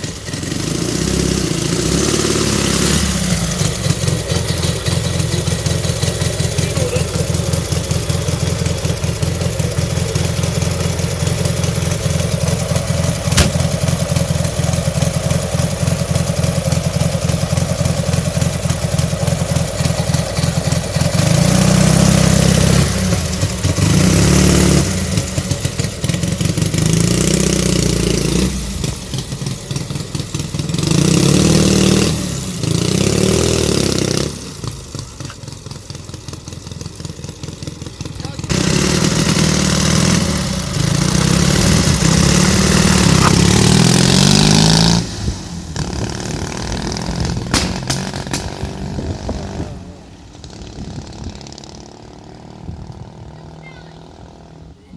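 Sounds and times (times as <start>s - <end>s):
motorcycle engine idling and revving: 0.0s - 54.9s.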